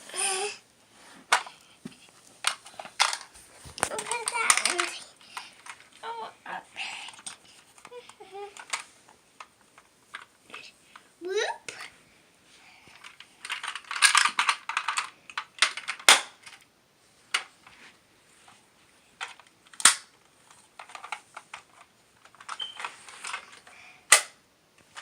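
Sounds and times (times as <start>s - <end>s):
plastic toy pieces clattering: 2.4s - 6.0s, 13.0s - 16.6s, 19.2s - 24.3s.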